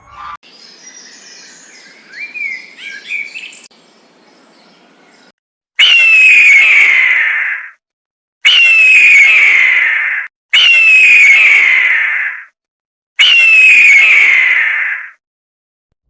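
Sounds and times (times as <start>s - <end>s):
small birds chirping: 0.0s - 5.3s
loud harsh animal call: 5.8s - 7.8s, 8.4s - 12.5s, 13.2s - 15.2s.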